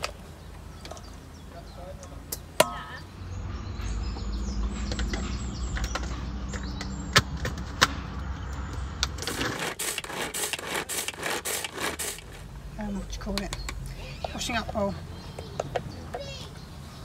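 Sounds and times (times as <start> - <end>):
utensils scraping chopping board: 9.2 - 12.3.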